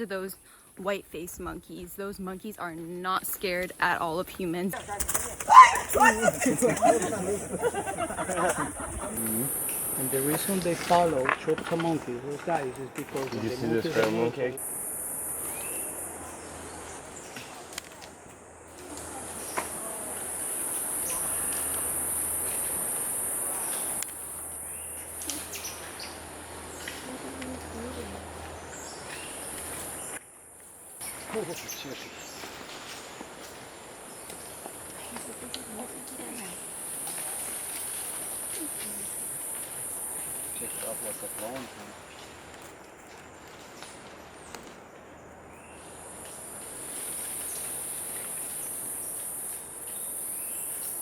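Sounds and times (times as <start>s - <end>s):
insects buzzing: 0.0s - 51.0s
high-pitched insect drone: 8.4s - 11.8s, 14.6s - 17.3s, 18.7s - 32.0s.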